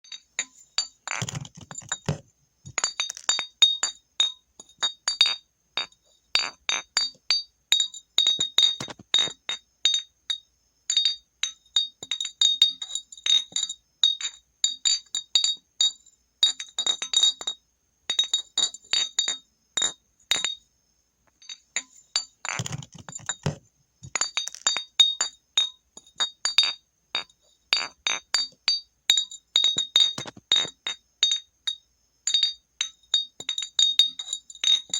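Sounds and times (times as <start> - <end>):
glass bottle clinking: 0.1 - 10.1, 21.3 - 31.5, 32.3 - 34.9.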